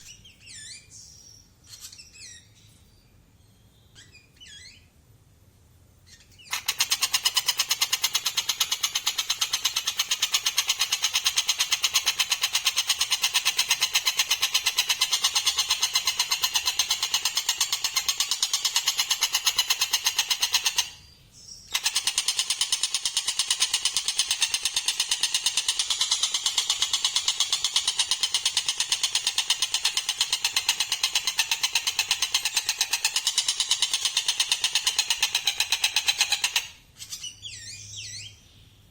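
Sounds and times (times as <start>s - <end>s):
fast pulsed rattling bird call: 6.5s - 21.0s, 21.7s - 37.2s.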